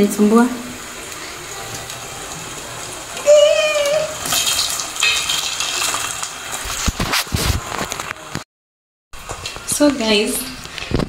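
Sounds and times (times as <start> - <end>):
potato chips sizzling in hot oil: 0.0 - 8.4.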